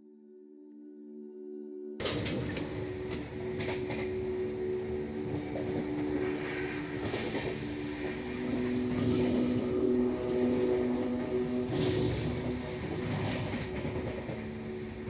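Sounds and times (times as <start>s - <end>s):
held tones: 2.6s - 15.0s.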